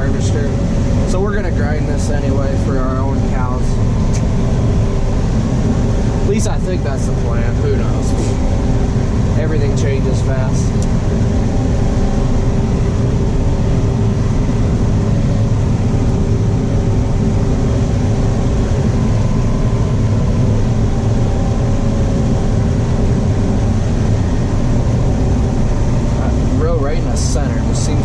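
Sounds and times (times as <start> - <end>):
low engine drone: 0.0 - 28.0
steady hum: 0.0 - 28.0.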